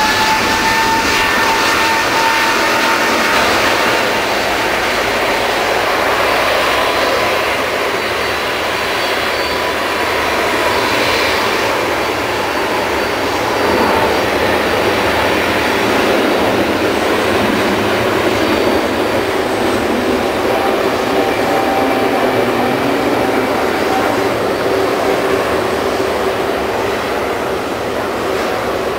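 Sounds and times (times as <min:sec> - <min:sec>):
jet engines roaring: 0:00.0 - 0:28.9.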